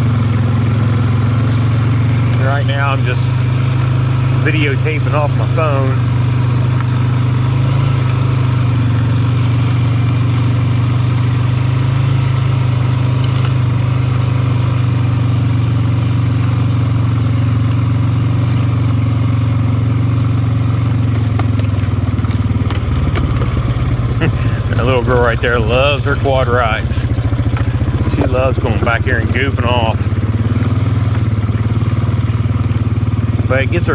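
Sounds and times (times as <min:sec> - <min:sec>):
atv engine running: 0:00.0 - 0:33.9.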